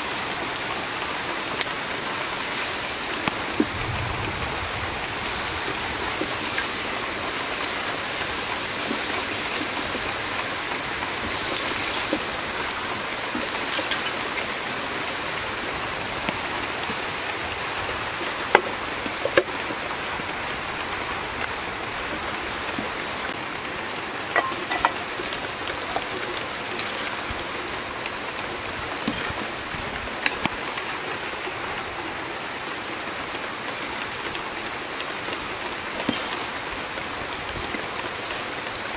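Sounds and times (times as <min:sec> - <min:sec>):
rain hissing on surfaces: 0:00.0 - 0:38.9
cookware clinks and clicks: 0:24.3 - 0:25.1.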